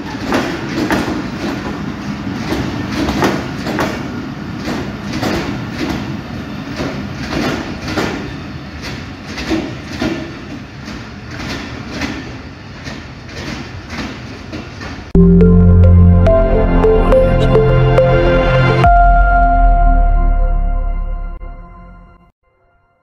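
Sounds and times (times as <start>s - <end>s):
train coaches rolling past: 0.0s - 15.2s
train wheels clicking over rail joints: 0.0s - 15.2s
loud music: 15.2s - 22.2s.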